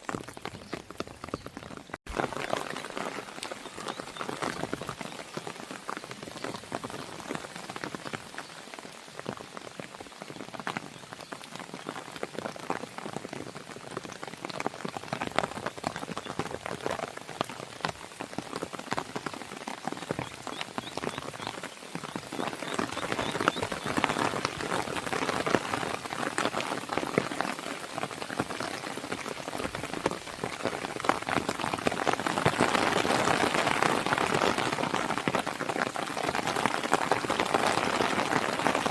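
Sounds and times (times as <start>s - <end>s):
rain pattering on a window: 0.0s - 38.9s.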